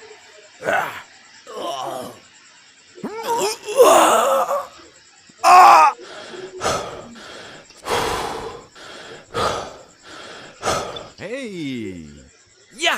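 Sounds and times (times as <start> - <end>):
person crying out: 3.0 - 4.7, 5.4 - 6.0
person gasping: 6.0 - 11.2.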